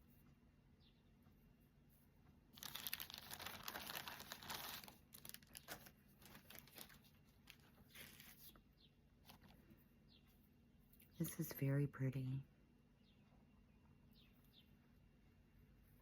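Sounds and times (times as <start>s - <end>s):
packaging crinkling: 2.6s - 8.6s.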